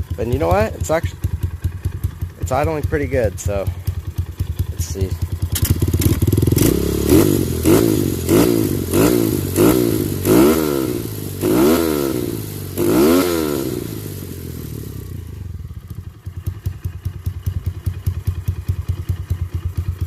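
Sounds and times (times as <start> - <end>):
small motorbike engine revving: 3.7 - 18.5.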